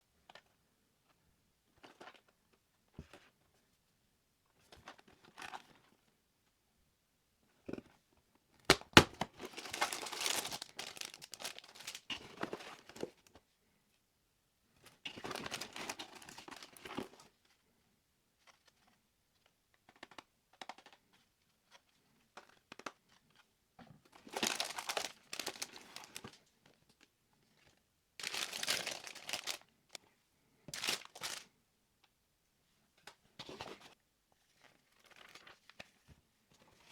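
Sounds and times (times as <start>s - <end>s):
packaging tearing and crinkling: 8.7s - 12.1s, 24.3s - 26.2s, 28.2s - 29.6s, 30.8s - 31.4s.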